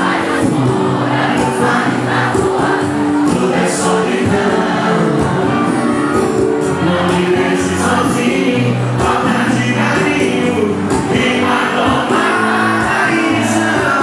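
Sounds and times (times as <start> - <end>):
crowd singing along: 0.0 - 14.0
live band playing: 0.0 - 14.0.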